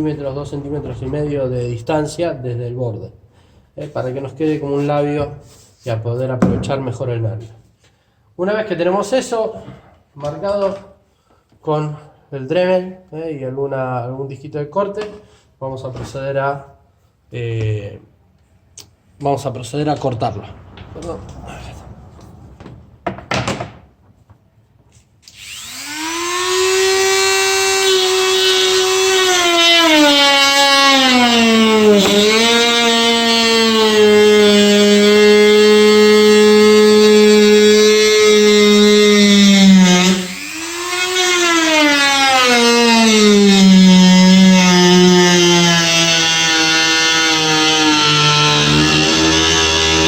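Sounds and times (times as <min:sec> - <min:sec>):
rotary tool cutting plastic: 0:25.2 - 0:30.1
rotary tool whining: 0:25.2 - 0:50.0.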